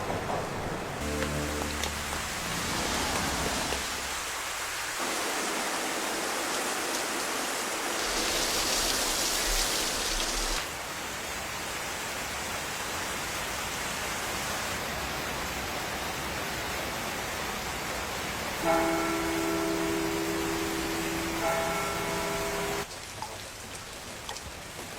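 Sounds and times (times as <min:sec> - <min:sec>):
rain hissing: 0:00.0 - 0:10.8.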